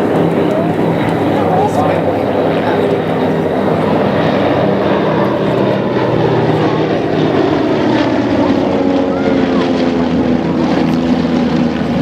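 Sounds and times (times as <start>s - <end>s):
propeller airplane engine running: 0.0s - 12.0s.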